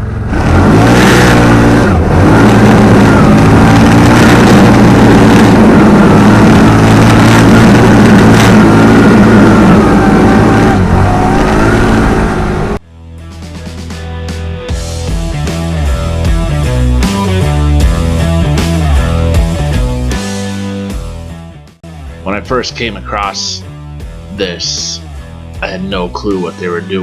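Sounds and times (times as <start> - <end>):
diesel truck engine under load: 0.0 - 12.8.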